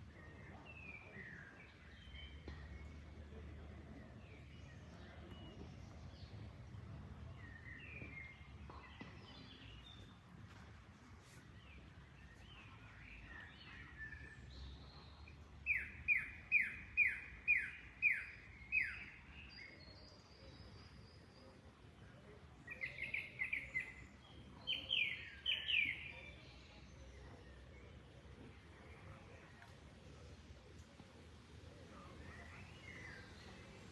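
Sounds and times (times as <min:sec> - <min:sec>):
faint background noise: 0:00.0 - 0:33.9.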